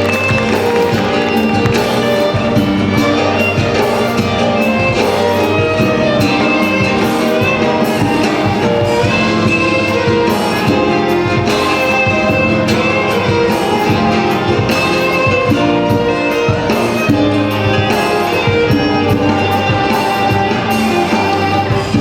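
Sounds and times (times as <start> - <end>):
instrumental ensemble music: 0.0 - 22.0.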